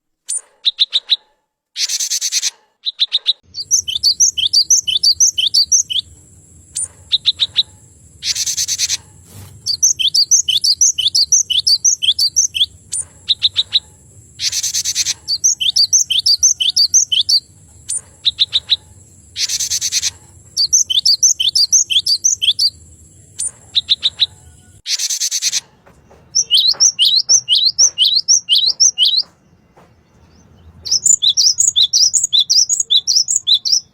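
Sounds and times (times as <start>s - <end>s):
harsh buzzy bird call: 1.8s - 25.8s
rapid ticking bird notes: 1.8s - 33.9s
sharp high down-slurred bird notes: 1.9s - 9.0s.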